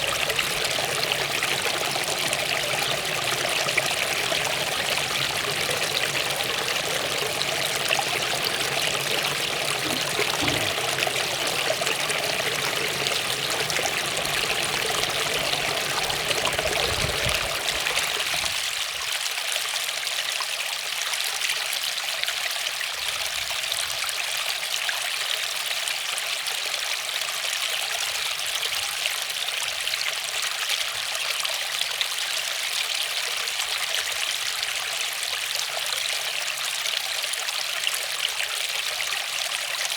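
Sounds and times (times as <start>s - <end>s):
waterfall rushing water: 0.0s - 17.9s.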